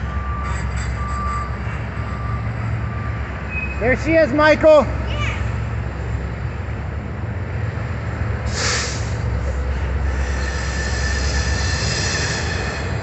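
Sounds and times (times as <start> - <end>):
train wheels squealing on rails: 0.0 - 4.0, 8.5 - 13.0
freight train rumbling past: 0.0 - 13.0
short hiss: 8.5 - 9.2.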